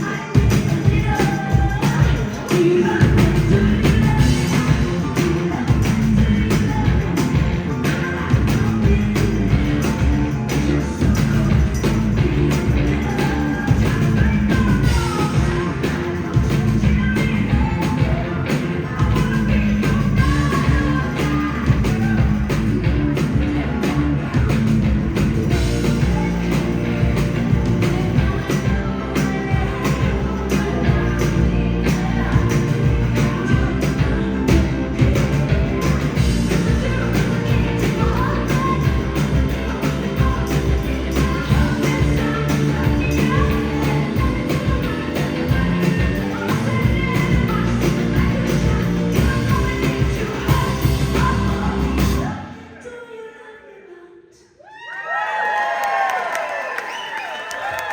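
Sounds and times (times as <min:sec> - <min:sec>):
steady drum beat: 0:00.0 - 0:52.4
rock band playing live: 0:00.0 - 0:52.5
person singing: 0:00.0 - 0:54.6.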